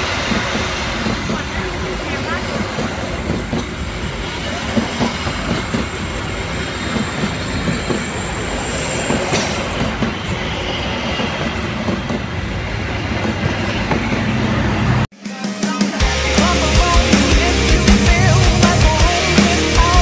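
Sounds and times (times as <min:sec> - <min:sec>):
train wheels clattering on rails: 0:00.0 - 0:15.1
wheel squeal: 0:04.1 - 0:12.4.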